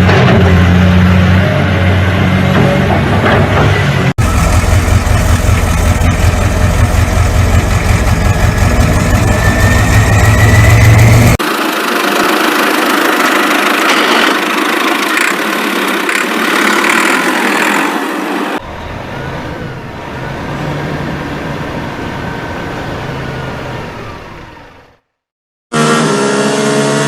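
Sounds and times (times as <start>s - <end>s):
loud noisy vehicle engine: 0.0s - 27.0s.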